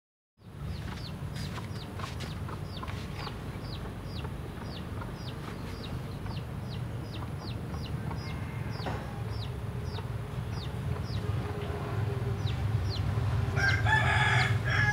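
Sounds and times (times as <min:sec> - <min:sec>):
bird chirping: 0:00.4 - 0:11.7, 0:12.3 - 0:13.8
steady low hum: 0:00.4 - 0:13.9.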